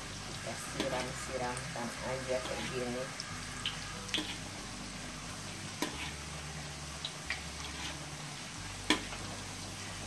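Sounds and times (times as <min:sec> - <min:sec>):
fritters sizzling in hot oil: 0:00.0 - 0:10.0.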